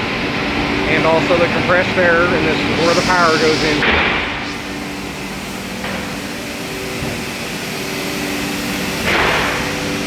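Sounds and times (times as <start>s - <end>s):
cnc router machinery drone: 0.0s - 10.0s
vacuum pumps humming: 0.0s - 10.0s
steady tones: 0.7s - 9.1s
brief hissing: 0.9s - 7.3s.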